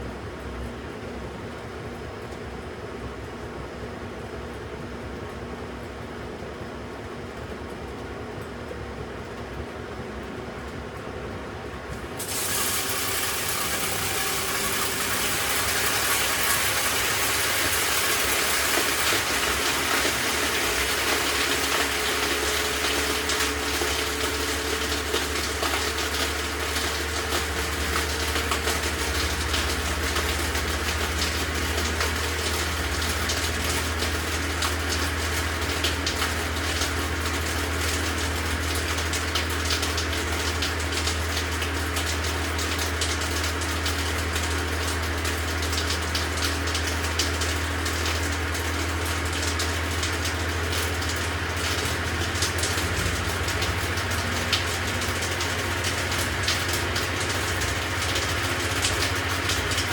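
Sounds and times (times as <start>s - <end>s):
low machine hum: 0.0s - 59.9s
water rushing in washing machine: 11.5s - 59.9s.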